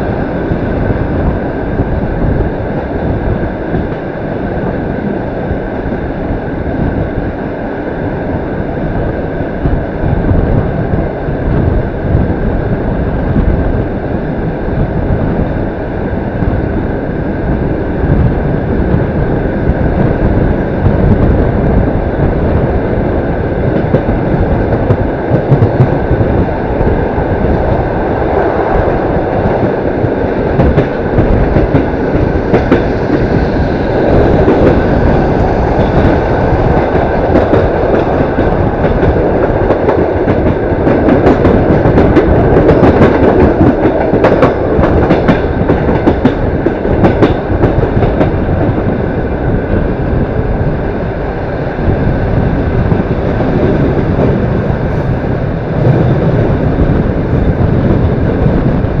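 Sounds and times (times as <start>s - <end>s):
train rolling rumble: 0.0s - 59.0s
wheels clacking over rail joints: 23.6s - 48.8s.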